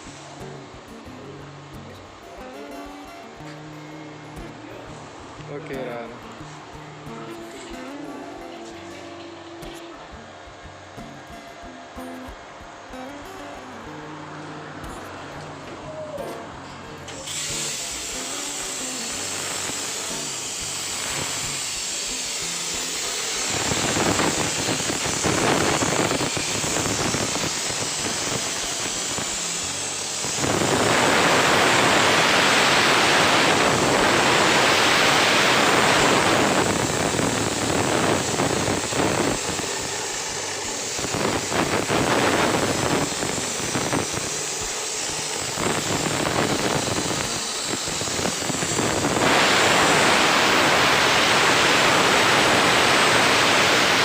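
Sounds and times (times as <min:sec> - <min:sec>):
plasma cutter hissing: 0:13.0 - 0:54.0.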